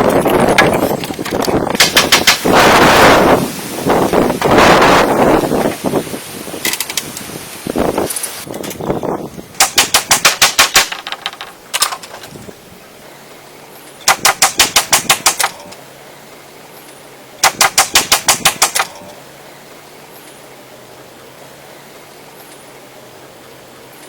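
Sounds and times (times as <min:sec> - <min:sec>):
rapid sharp knocking: 0:01.7 - 0:03.2, 0:09.6 - 0:11.4, 0:14.0 - 0:15.6, 0:17.4 - 0:19.0.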